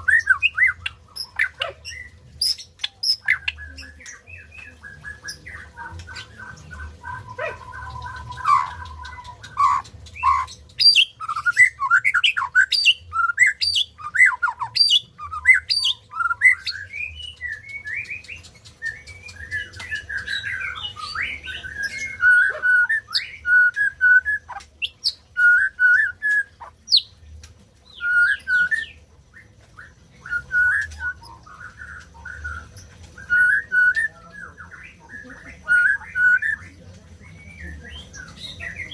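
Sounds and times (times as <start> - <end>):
bird singing whistles: 2.5 - 26.6, 27.9 - 29.0, 30.2 - 34.9.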